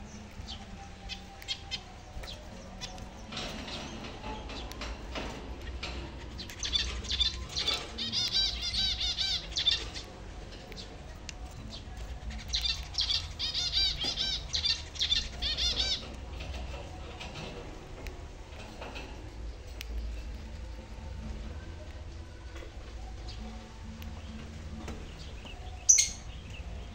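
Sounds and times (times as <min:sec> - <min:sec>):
finches chirping: 0:05.6 - 0:10.1, 0:11.5 - 0:16.6, 0:25.1 - 0:26.9.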